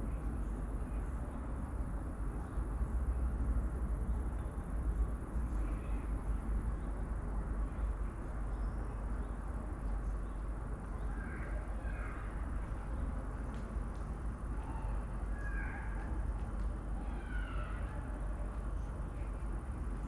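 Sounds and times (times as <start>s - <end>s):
bird calls: 14.5s - 16.2s, 17.0s - 19.4s.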